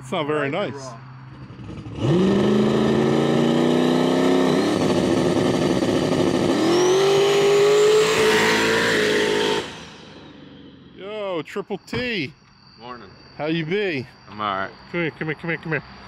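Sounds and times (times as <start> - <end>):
car engine at full throttle: 1.2 - 11.0
faint high whine: 7.1 - 16.0.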